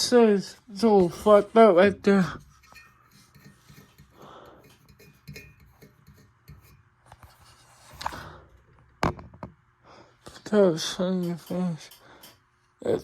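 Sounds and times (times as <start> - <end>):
ceiling fan rubbing and tapping: 0.0 - 9.5, 10.2 - 13.0.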